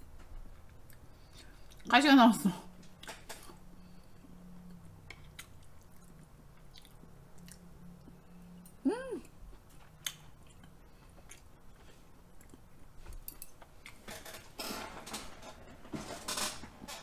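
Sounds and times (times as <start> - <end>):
close chewing soft and wet: 0.6 - 1.9, 4.7 - 8.4, 9.2 - 13.2.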